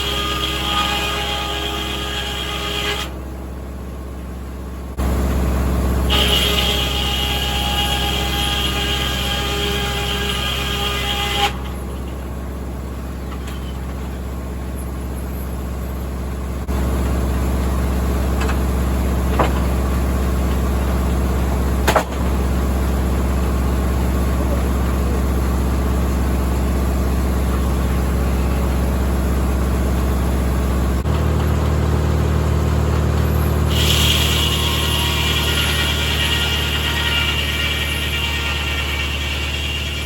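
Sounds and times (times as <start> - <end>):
high whine of saw: 0.0 - 3.2, 5.7 - 14.2, 33.3 - 40.0
low engine drone: 0.0 - 40.0
sharp knocks: 19.3 - 19.8, 21.8 - 22.4.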